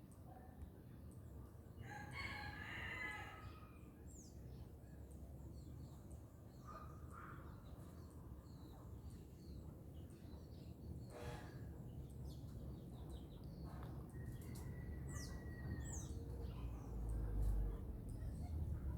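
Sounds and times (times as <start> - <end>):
distant rooster crowing: 14.3 - 16.0.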